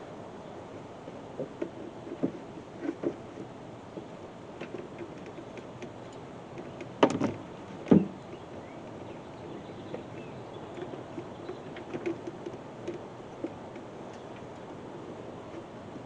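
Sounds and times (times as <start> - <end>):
sharp knocks: 7.0 - 8.2.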